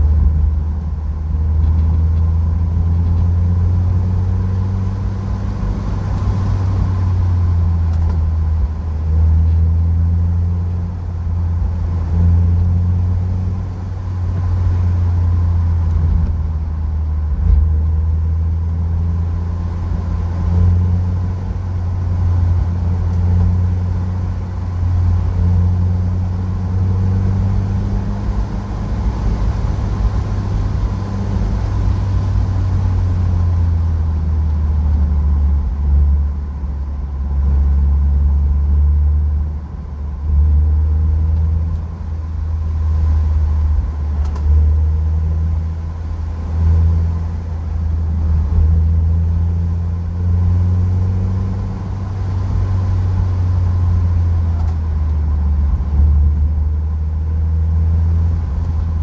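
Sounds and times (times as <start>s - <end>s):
car engine running: 0.0s - 59.0s
road noise drone: 0.0s - 59.0s.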